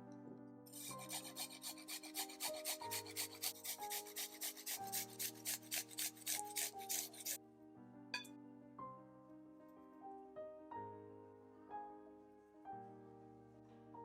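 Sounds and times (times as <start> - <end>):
soft background music: 0.0 - 14.0
utensil scraping in bowl: 0.7 - 7.4.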